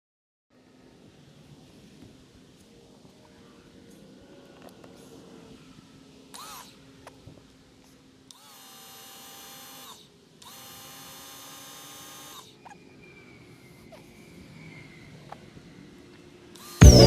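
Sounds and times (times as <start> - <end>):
small motor whirring: 6.2 - 16.8.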